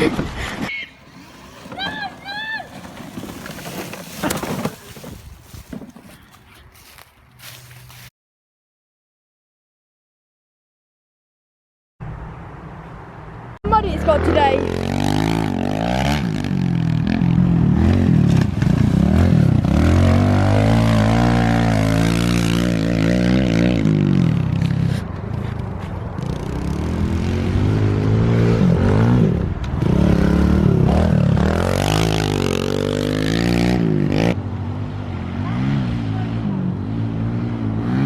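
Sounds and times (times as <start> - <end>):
minibike engine revving: 0.7 - 6.9, 13.7 - 25.1, 26.2 - 34.4.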